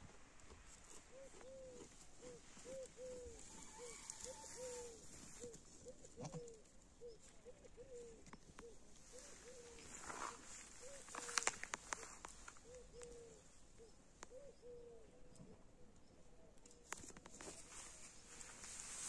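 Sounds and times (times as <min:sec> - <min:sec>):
bird calling in faint notes: 0:01.0 - 0:16.9.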